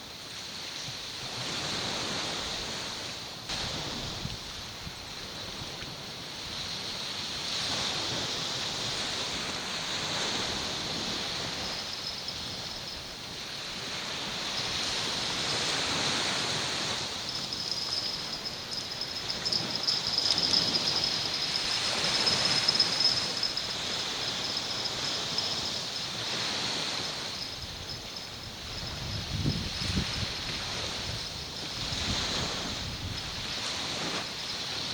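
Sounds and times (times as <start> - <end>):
sea waves washing ashore: 0.0 - 34.9
thin high-pitched tone: 17.2 - 26.0.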